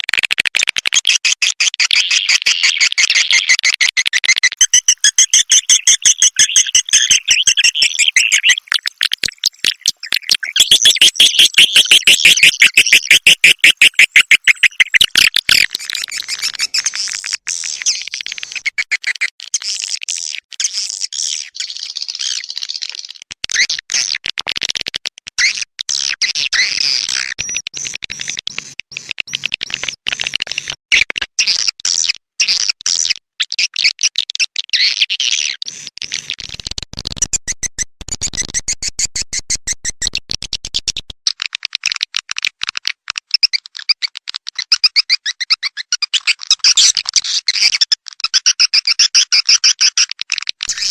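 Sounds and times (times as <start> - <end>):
swiftlet chirps and clicks: 4.4 - 19.2, 50.7 - 50.9.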